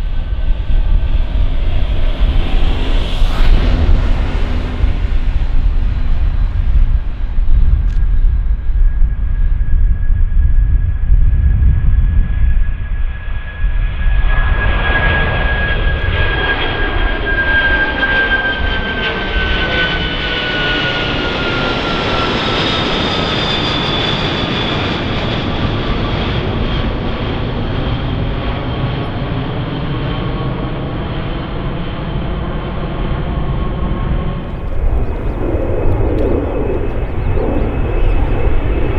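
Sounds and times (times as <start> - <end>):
jet engines passing: 0.0 - 10.5, 12.3 - 38.9
high fan whine: 34.2 - 38.9.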